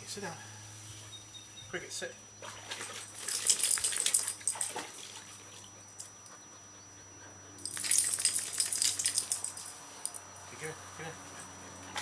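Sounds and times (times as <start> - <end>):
metallic jingling: 3.1 - 4.7, 7.6 - 10.5.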